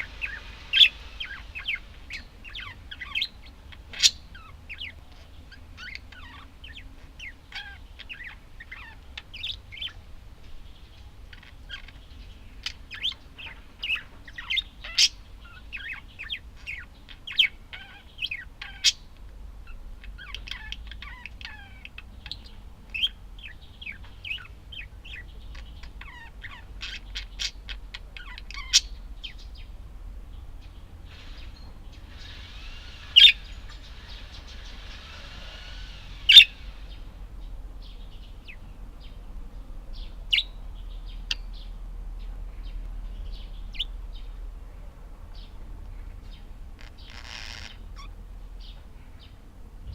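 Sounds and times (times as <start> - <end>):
sharp bird calls: 0.0 - 10.0, 10.7 - 29.7, 30.6 - 37.2, 46.2 - 49.9
budgerigars chirping and warbling: 0.0 - 29.7, 30.3 - 39.2, 39.9 - 44.4, 46.2 - 49.9.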